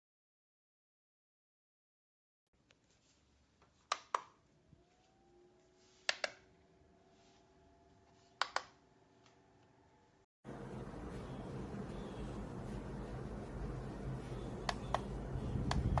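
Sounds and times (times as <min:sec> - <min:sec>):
fan motor rising tone: 0:04.5 - 0:08.2, 0:08.9 - 0:16.0
loud steady rushing noise: 0:10.5 - 0:16.0.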